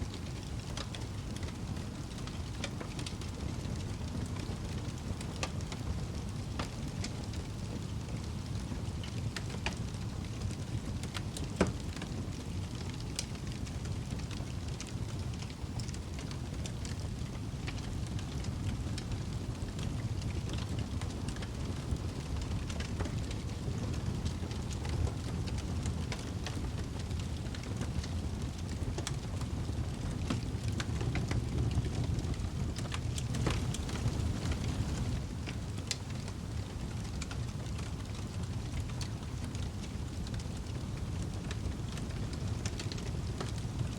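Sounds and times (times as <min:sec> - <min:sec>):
fire flames rumbling: 0:00.0 - 0:43.9
wood crackling and popping: 0:00.0 - 0:43.9.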